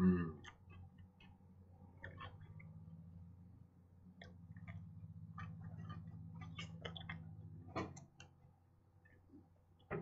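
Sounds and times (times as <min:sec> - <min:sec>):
low steady hum: 0:00.0 - 0:10.0
person chewing: 0:00.4 - 0:02.9, 0:04.0 - 0:08.4.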